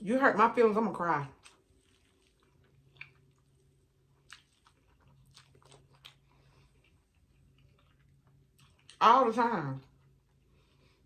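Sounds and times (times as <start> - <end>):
faint low hum: 0.0 - 11.0
noodle chewing: 1.4 - 9.0.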